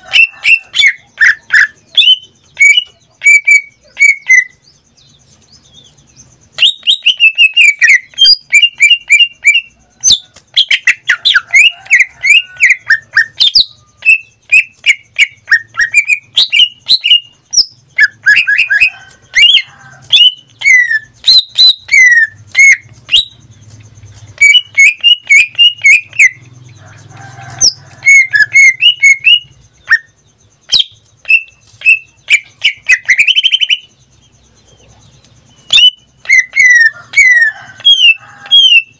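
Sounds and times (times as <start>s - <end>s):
songbird singing varied whistles: 35.5s - 38.9s.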